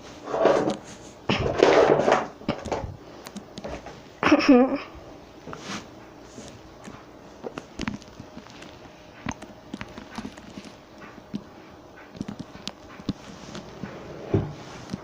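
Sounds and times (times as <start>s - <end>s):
footsteps: 5.5s - 15.0s
objects being handled: 5.5s - 15.0s.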